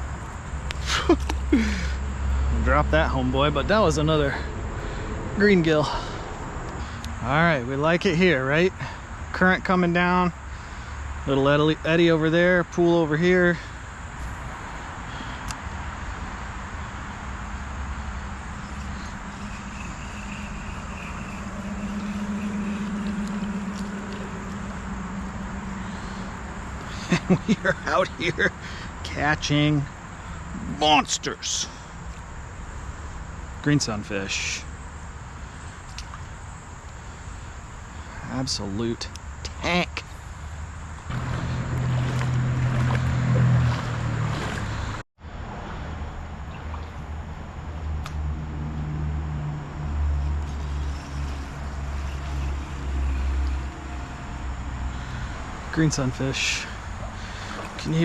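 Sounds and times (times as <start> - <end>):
road traffic hum: 0.0 - 58.0
vehicle passing by: 0.8 - 7.8, 14.2 - 30.8, 40.2 - 46.7, 47.5 - 58.0
creek water rushing: 14.2 - 29.0, 41.1 - 45.0, 50.4 - 58.0.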